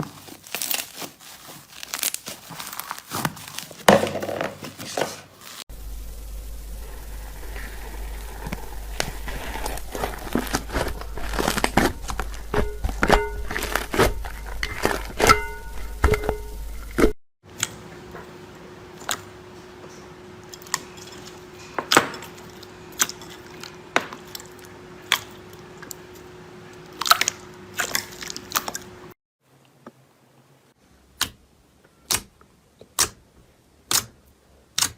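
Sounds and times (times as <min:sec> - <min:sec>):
slime crackling and popping: 0:00.4 - 0:03.9, 0:05.8 - 0:16.5
faint steady hum: 0:05.7 - 0:17.2.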